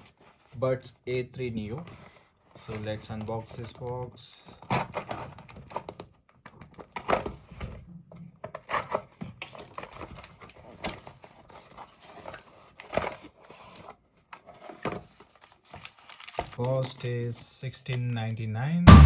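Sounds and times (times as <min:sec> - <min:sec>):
cardboard box handling: 0:01.4 - 0:16.6.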